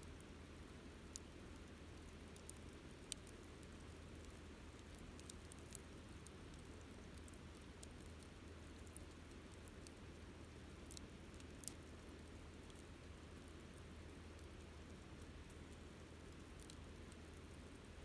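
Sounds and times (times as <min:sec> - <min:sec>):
low steady hiss: 0:00.0 - 0:18.0
campfire crackling: 0:10.7 - 0:12.9.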